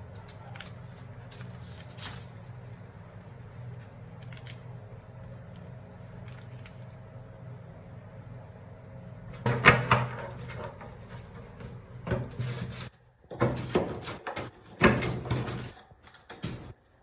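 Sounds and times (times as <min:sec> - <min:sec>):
steady low hum: 0:00.0 - 0:17.0
hard objects knocking and clattering: 0:09.4 - 0:12.7, 0:13.3 - 0:16.8.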